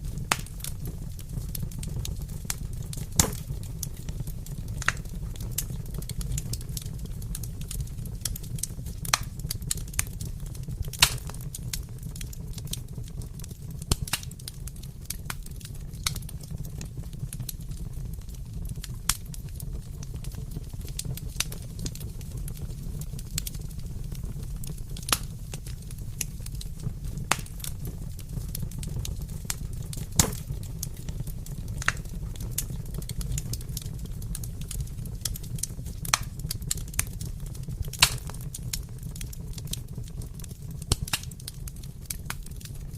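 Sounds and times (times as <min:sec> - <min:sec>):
sharp pops of fire: 0:00.0 - 0:42.9
wood fire crackling: 0:00.0 - 0:42.9.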